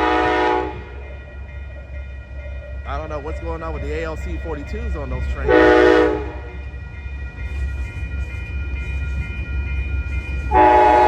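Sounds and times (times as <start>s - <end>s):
locomotive horn blast: 0.0s - 1.0s, 5.5s - 6.5s, 10.5s - 11.0s
train low rumble: 0.0s - 11.0s.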